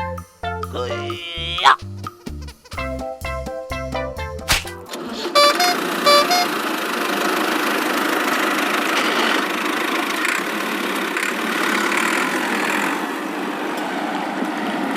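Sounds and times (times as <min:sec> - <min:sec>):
vehicle engine running: 0:04.8 - 0:13.5.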